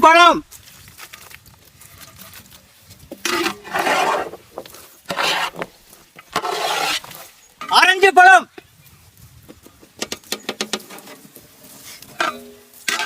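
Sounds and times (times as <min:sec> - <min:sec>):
fruit scraping and rustling: 0:00.6 - 0:07.7, 0:10.5 - 0:13.0.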